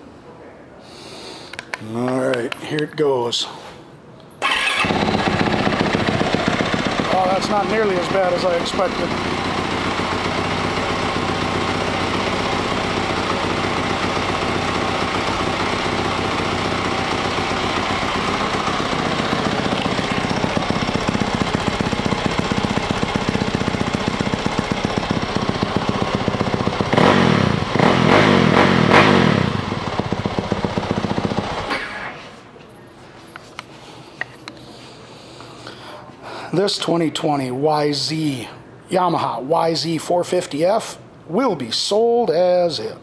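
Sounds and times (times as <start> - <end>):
motorcycle engine idling and revving: 4.4 - 32.1.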